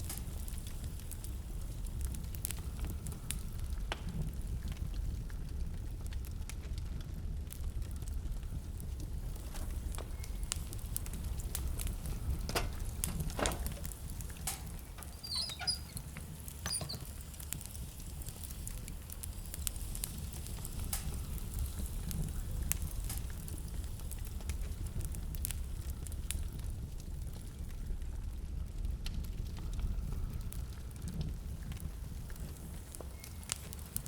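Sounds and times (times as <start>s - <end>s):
wood fire crackling: 0.0s - 34.0s
high-pitched squeaks: 15.0s - 16.0s, 16.7s - 17.1s.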